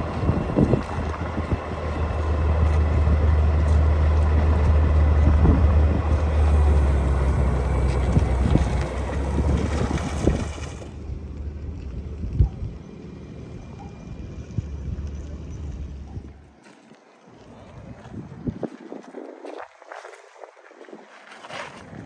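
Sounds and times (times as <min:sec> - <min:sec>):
wind noise on microphone: 0:00.0 - 0:11.0, 0:17.6 - 0:22.0
car engine rumble: 0:00.0 - 0:16.6.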